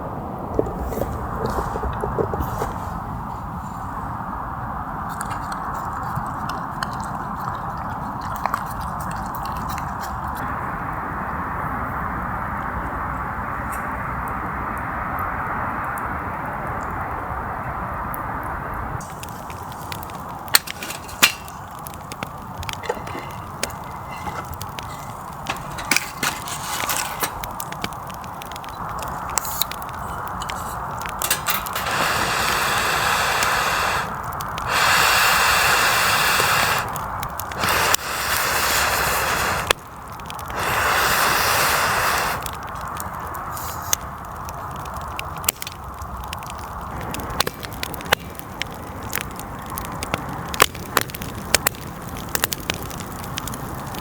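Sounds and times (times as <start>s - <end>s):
campfire crackling and popping: 0.0s - 12.8s, 13.4s - 54.0s
hissing rushes: 19.0s - 48.3s.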